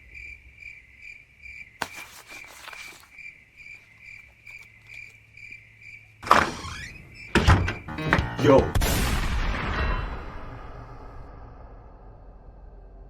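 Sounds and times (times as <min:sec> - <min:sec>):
crickets chirping: 0:00.0 - 0:08.0.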